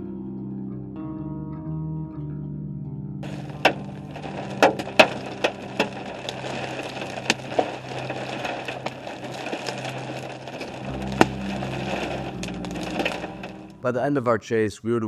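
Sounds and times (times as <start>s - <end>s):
hailstones striking a vehicle: 3.2s - 13.9s
wind-driven rain: 3.2s - 13.9s.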